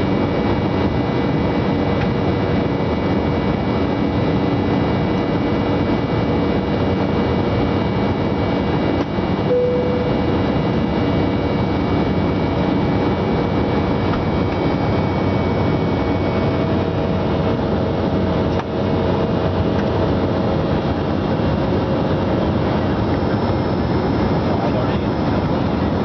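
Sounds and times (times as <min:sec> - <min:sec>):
airliner cabin engine drone: 0:00.0 - 0:26.0
faint steady whines: 0:00.0 - 0:26.0.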